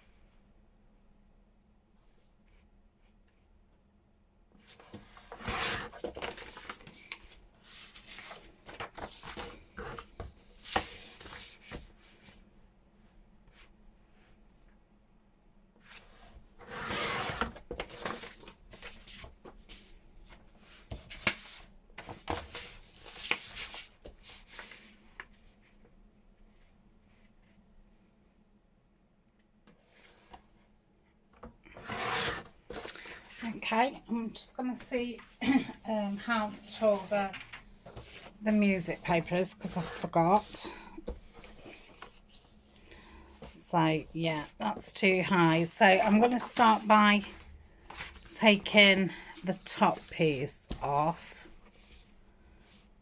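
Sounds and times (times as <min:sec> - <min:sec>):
paper rustling on a desk: 0:04.6 - 0:12.4, 0:15.8 - 0:25.6, 0:31.7 - 0:33.5, 0:35.2 - 0:52.8.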